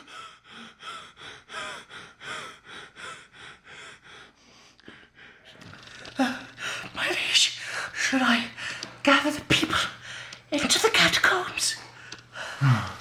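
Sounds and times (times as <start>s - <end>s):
person sobbing: 12.5s - 13.0s.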